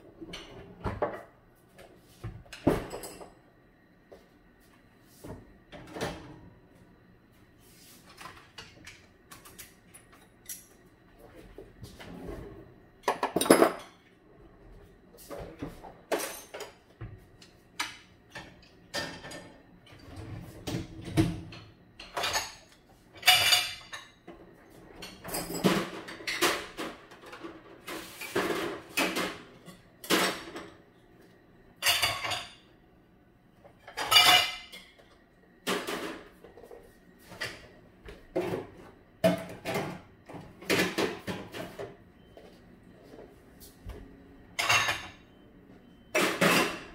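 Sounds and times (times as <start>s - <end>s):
dishes and cutlery clinking: 31.8s - 32.6s, 33.8s - 35.0s, 46.1s - 46.9s.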